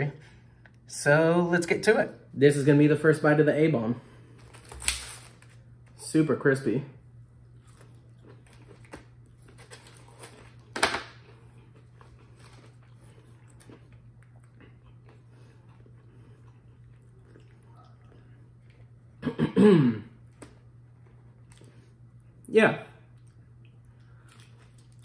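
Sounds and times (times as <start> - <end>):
person chewing crunchy food: 7.4 - 19.2, 23.1 - 25.0.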